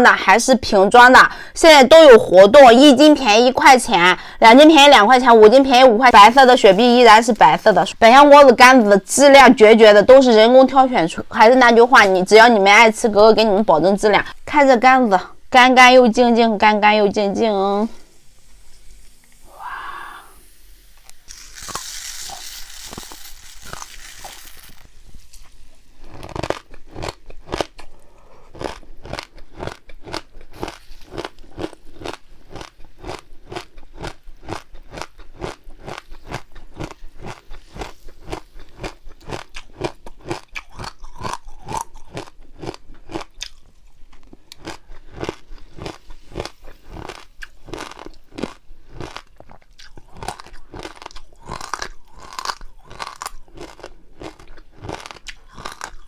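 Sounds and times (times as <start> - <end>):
chewing crunchy food: 21.0 - 56.0.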